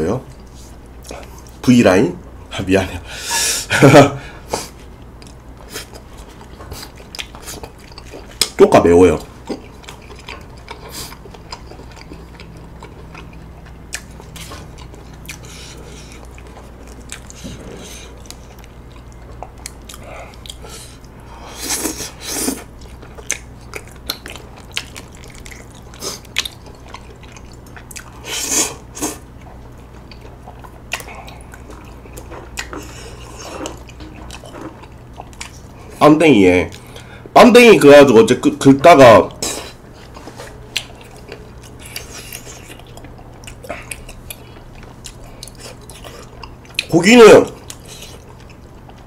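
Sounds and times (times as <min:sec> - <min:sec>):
steady low hum: 0:00.0 - 0:49.0
chewing chewy rice cakes: 0:04.6 - 0:37.3, 0:39.3 - 0:49.0.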